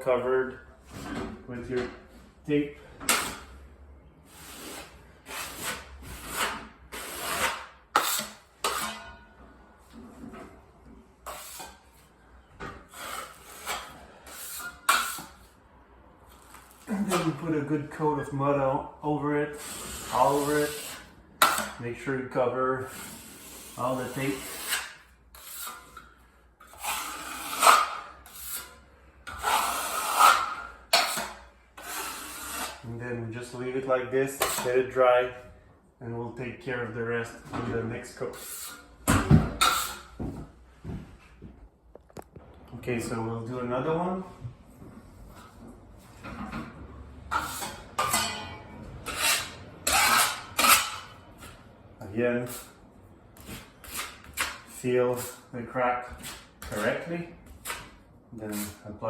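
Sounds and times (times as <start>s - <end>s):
taping knife scraping joint compound: 3.1s - 3.6s, 4.3s - 9.2s, 11.2s - 11.9s, 12.8s - 15.5s, 19.5s - 21.8s, 22.8s - 32.9s, 34.4s - 34.8s, 38.2s - 38.9s, 47.3s - 48.4s, 49.0s - 51.6s, 53.4s - 58.9s.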